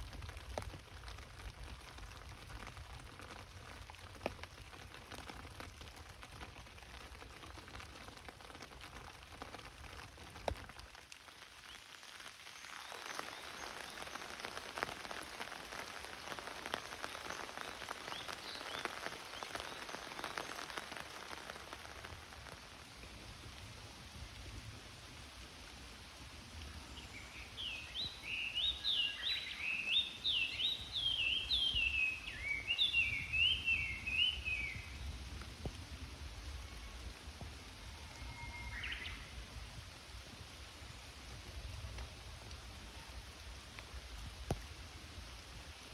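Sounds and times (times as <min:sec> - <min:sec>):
rain falling through foliage: 0:00.0 - 0:45.9
bird singing: 0:27.1 - 0:35.0.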